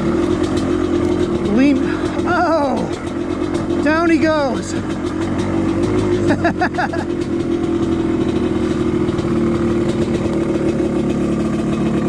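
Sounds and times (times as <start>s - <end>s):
two-stroke dirt bike idling: 0.0s - 12.0s.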